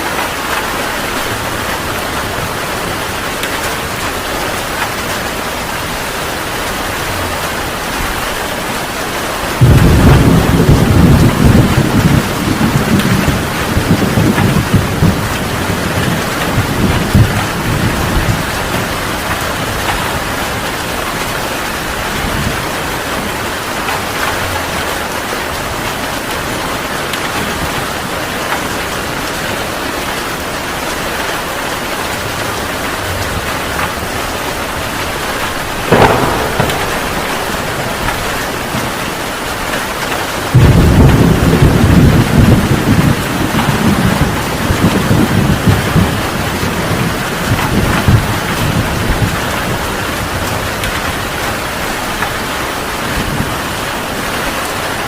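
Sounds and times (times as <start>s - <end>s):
thunder rumbling: 0.0s - 51.5s
heavy rain falling: 0.0s - 55.0s
thunder crack: 9.6s - 20.3s, 33.8s - 49.8s.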